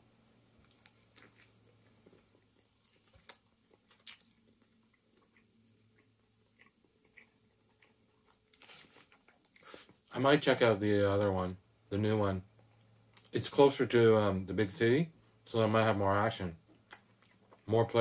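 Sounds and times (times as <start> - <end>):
low steady hum: 0.0 - 18.0
chewing flaky pastry: 0.3 - 10.1, 16.7 - 18.0.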